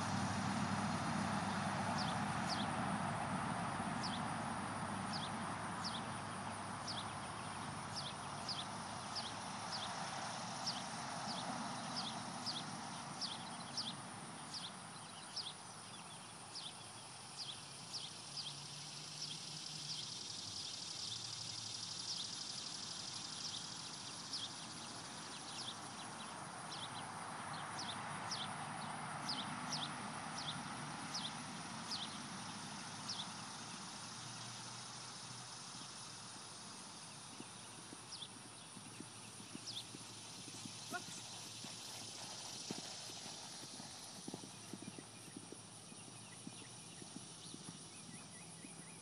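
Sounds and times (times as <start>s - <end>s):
steady outdoor hiss: 0.0s - 49.0s
small bird chirping: 37.1s - 49.0s.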